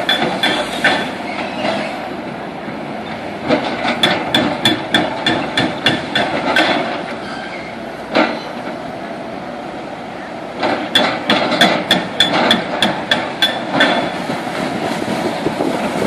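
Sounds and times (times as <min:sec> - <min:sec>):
hammer clanging on metal: 0:03.8 - 0:06.9, 0:10.8 - 0:14.2.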